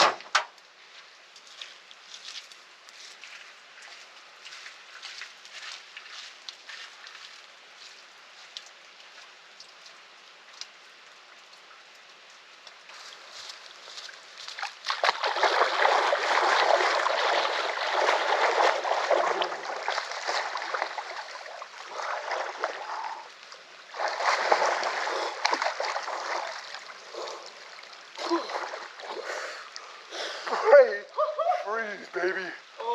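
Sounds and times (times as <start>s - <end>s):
stream running water: 0.4s - 32.9s
water splashing from wading: 13.0s - 30.0s.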